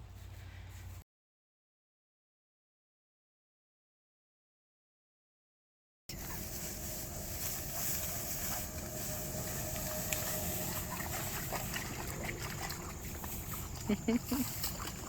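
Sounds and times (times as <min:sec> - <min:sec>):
steady high hiss: 0:06.1 - 0:11.8
wind rumbling on microphone: 0:06.1 - 0:15.0.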